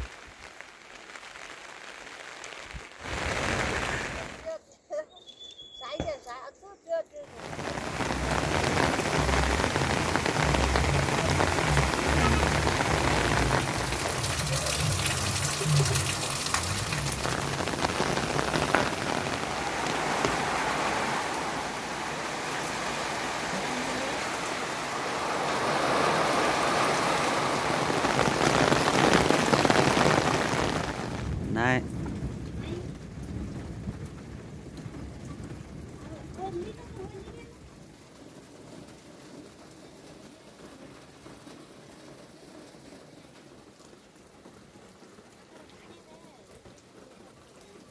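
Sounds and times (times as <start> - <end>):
heavy rain falling: 0.0 - 4.6, 7.3 - 47.9
low rumble: 7.4 - 23.5.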